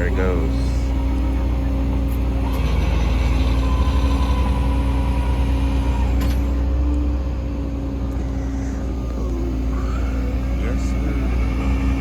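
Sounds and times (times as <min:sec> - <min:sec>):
thin steady whine: 0:00.0 - 0:12.0
truck engine rumbling: 0:00.0 - 0:12.0.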